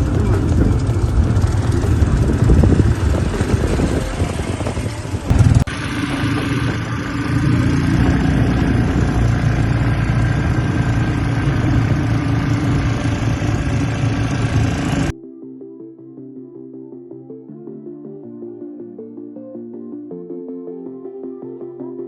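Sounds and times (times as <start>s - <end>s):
quad bike engine running: 0.0s - 15.1s.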